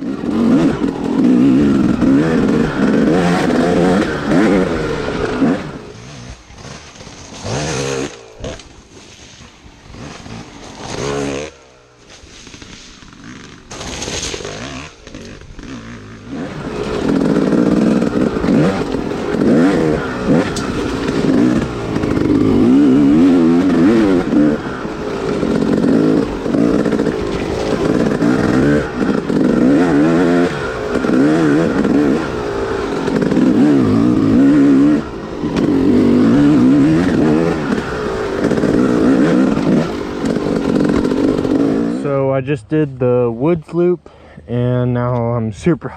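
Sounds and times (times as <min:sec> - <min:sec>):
dirt bike engine revving: 0:00.0 - 0:45.1.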